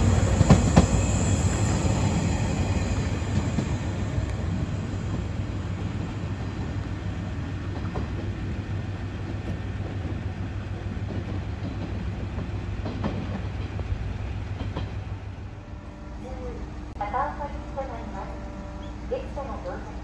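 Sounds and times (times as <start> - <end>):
electric train rumbling: 0.0 - 20.0
wheels clacking over rail joints: 9.2 - 15.1.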